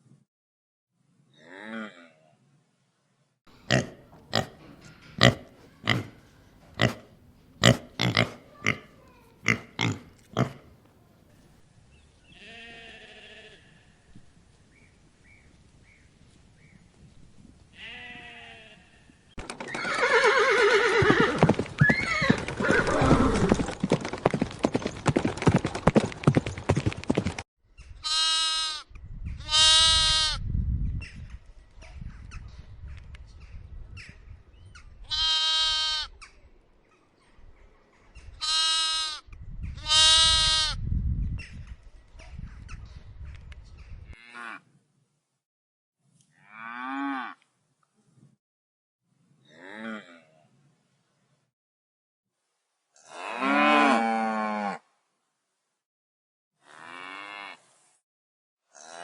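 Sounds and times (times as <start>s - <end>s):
rough animal noise: 3.5s - 10.9s.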